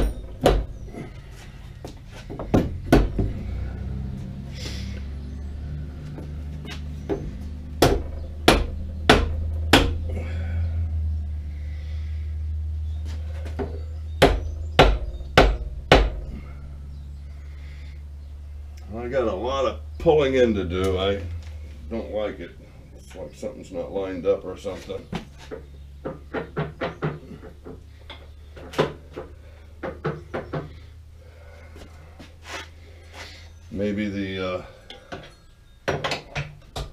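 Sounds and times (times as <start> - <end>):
steady low hum: 0.0 - 35.9
hammer striking metal: 7.8 - 10.0.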